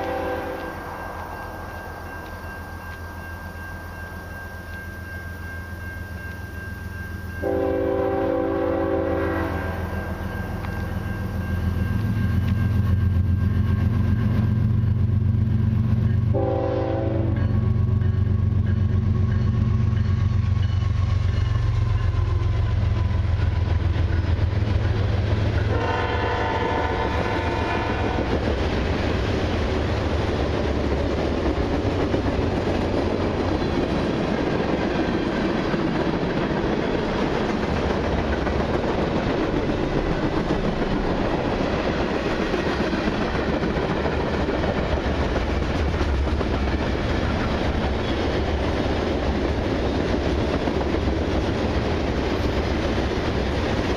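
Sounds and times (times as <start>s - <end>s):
train horn blast: 0.0s - 0.8s, 7.4s - 10.2s, 16.3s - 17.5s, 25.6s - 28.4s
diesel locomotive engine rumble: 0.0s - 53.9s
freight cars rumbling and rattling: 17.4s - 53.9s.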